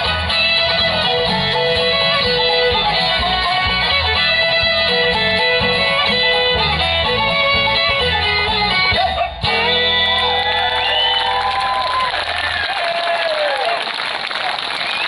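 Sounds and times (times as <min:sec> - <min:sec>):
acoustic guitar: 0:00.0 - 0:11.1
fiddle: 0:00.0 - 0:11.2
bass: 0:00.0 - 0:15.0.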